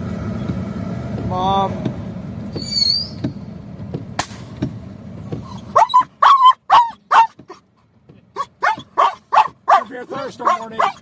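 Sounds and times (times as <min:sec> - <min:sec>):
low steady rumble: 0:00.0 - 0:11.0
dog barking: 0:05.7 - 0:07.4, 0:08.4 - 0:11.0.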